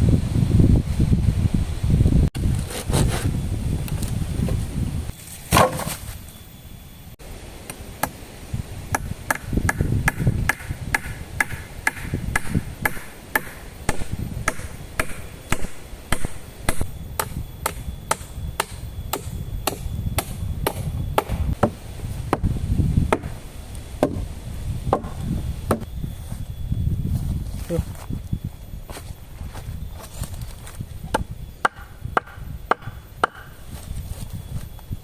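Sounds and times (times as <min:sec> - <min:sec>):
wind rumble on microphone: 0:00.0 - 0:05.2, 0:08.2 - 0:35.0
chopping wood: 0:05.5 - 0:06.0, 0:09.0 - 0:22.5, 0:24.0 - 0:24.2, 0:24.9 - 0:25.8.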